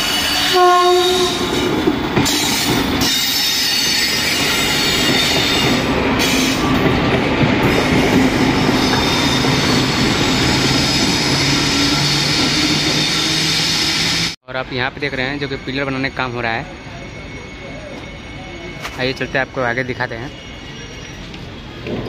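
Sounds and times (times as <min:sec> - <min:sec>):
train horn: 0:00.0 - 0:01.7
train wheels rumbling and clattering: 0:01.1 - 0:14.3, 0:20.6 - 0:22.0.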